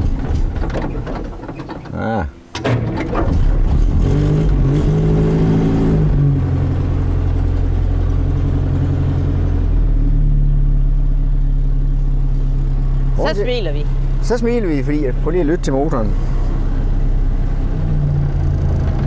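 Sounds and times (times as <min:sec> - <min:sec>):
car engine idling: 0:06.3 - 0:19.0.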